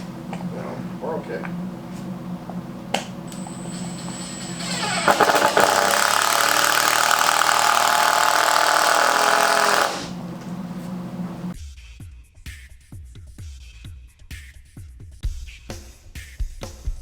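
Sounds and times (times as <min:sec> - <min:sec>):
power tool motor running: 0:03.3 - 0:11.5.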